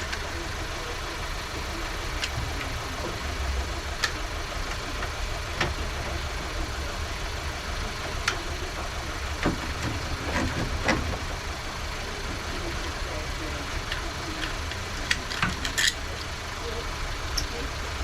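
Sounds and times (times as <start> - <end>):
steady low rumble: 0.0 - 18.0
tools and parts clinking: 13.7 - 16.4.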